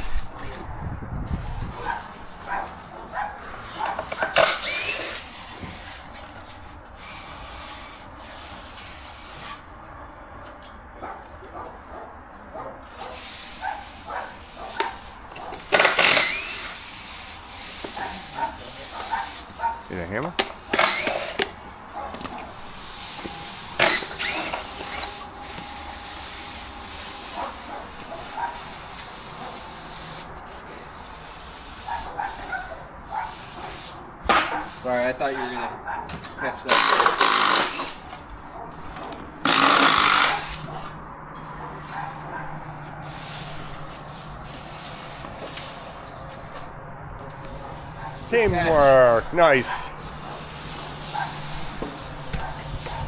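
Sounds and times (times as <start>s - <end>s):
wooden boards scraping: 0.0s - 9.9s, 12.8s - 53.0s
dog yelping: 1.8s - 5.0s, 11.0s - 15.6s, 18.0s - 19.9s, 21.9s - 22.2s, 31.9s - 33.8s, 34.5s - 36.6s, 41.6s - 42.6s, 51.1s - 51.5s.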